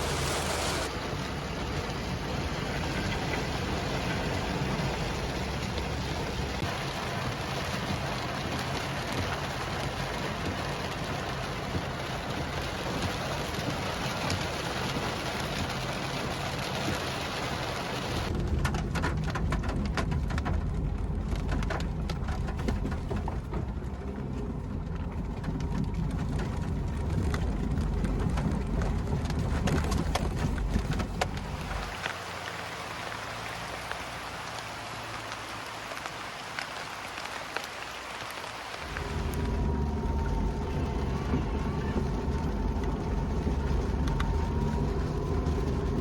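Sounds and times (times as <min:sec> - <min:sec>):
heavy rain falling: 0:00.0 - 0:46.0
deep low rumble: 0:18.3 - 0:31.9, 0:38.8 - 0:46.0.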